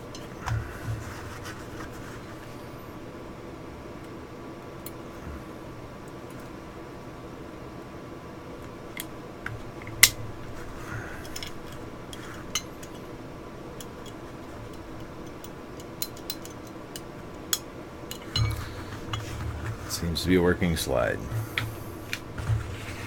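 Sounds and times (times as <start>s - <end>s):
faint steady hum: 0.0s - 23.0s
metal gun parts clicking: 13.8s - 19.3s.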